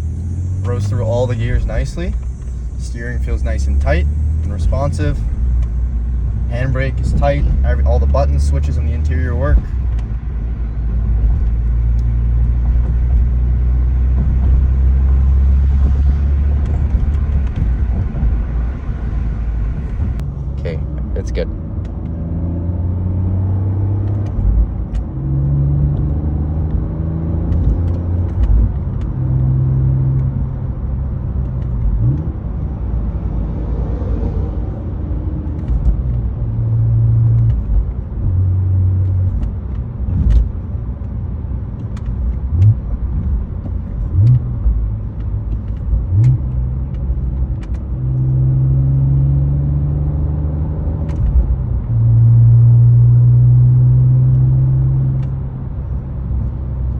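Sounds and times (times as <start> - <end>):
car engine revving: 0.0 - 56.9
road rumble: 0.0 - 56.9.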